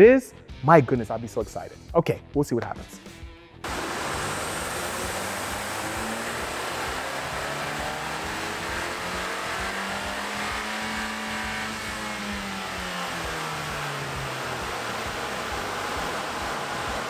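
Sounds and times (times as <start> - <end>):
rush of air: 3.7 - 7.3
car engine revving on dyno: 3.7 - 17.0.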